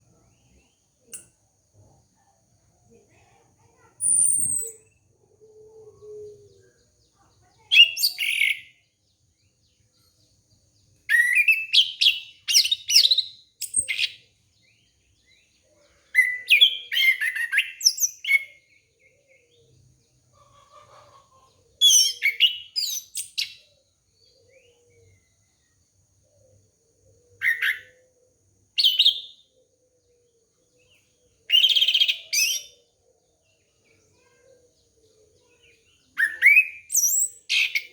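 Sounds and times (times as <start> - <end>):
thrush singing whistled phrases: 11.1 - 14.1.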